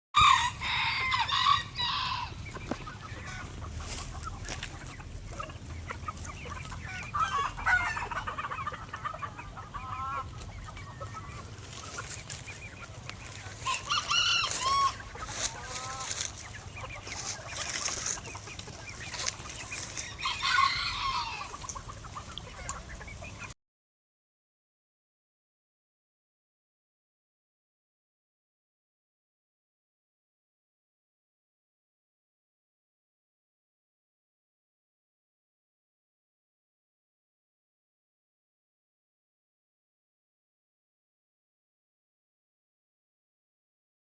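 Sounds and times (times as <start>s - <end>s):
roosters crowing: 0.2s - 4.0s, 6.8s - 10.3s, 13.2s - 18.4s, 19.1s - 21.7s
hens clucking: 0.2s - 23.6s.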